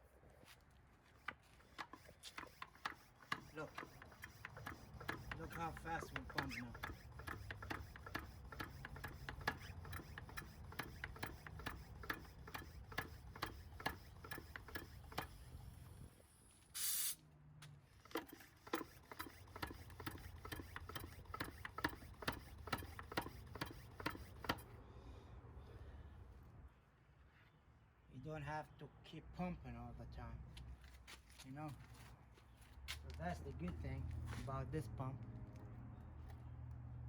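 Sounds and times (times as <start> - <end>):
hand pump clicking strokes: 1.1 - 16.0, 17.9 - 24.8
short air hiss: 16.7 - 17.2.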